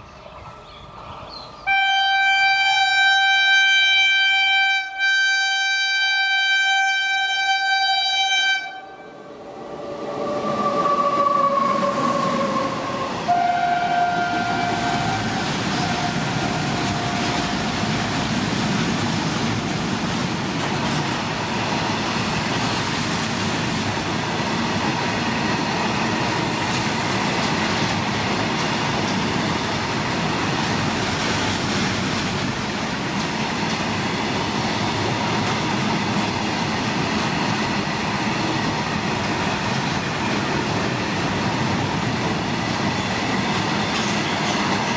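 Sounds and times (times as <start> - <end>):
train running past: 0.0 - 44.9
train horn blasts: 1.7 - 9.3, 10.6 - 18.1.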